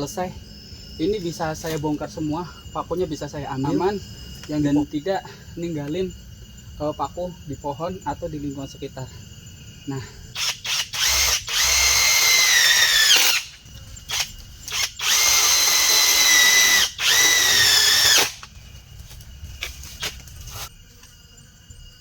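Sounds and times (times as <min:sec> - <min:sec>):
power drill driving screws: 0:10.4 - 0:13.5, 0:14.1 - 0:18.5.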